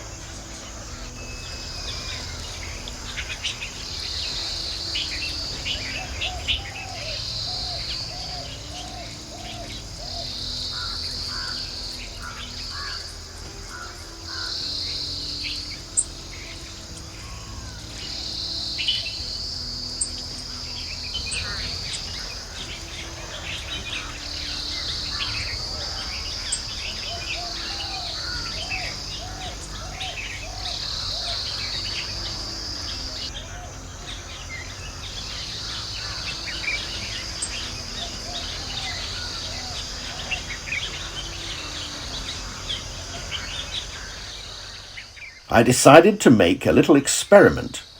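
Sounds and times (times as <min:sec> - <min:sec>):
insects buzzing in pulses: 0:00.0 - 0:47.9
wild birds calling: 0:00.0 - 0:47.9.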